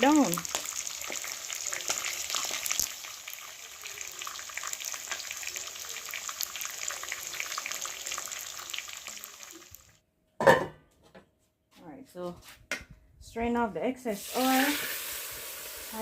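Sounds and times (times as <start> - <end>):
chicken frying in hot oil: 0.0 - 10.0, 14.2 - 16.0.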